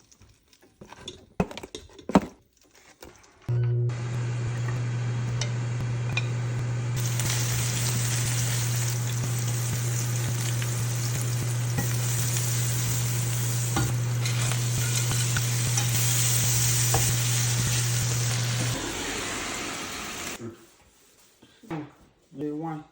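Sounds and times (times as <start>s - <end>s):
steady low hum: 3.5s - 18.8s
food sizzling in a pan: 4.0s - 20.4s.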